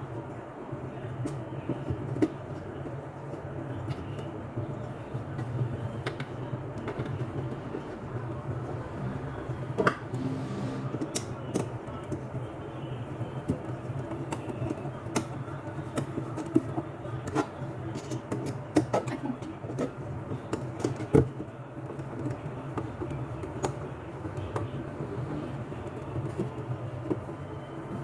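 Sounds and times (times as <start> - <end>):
steady low hum: 0.0 - 20.7.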